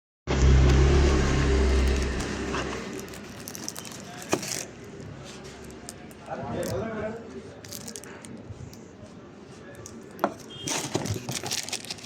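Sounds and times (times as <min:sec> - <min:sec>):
diesel engine running: 0:00.3 - 0:04.0.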